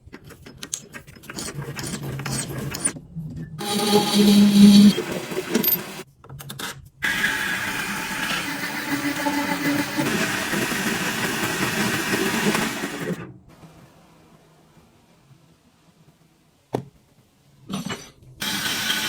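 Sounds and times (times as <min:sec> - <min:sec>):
small electric motor whirring: 0:03.6 - 0:06.0.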